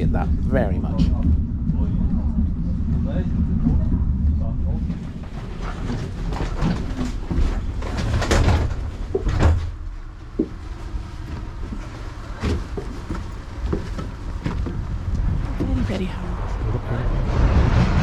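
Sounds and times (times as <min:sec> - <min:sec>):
train low rumble: 0:00.0 - 0:18.0.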